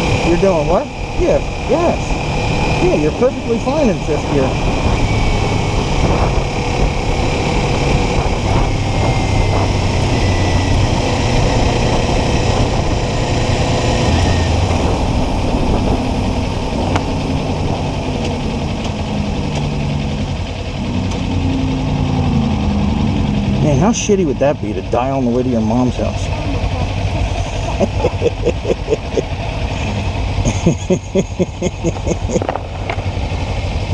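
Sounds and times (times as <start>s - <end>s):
motorcycle engine running: 0.0s - 33.9s
wind noise rushing: 4.1s - 18.2s.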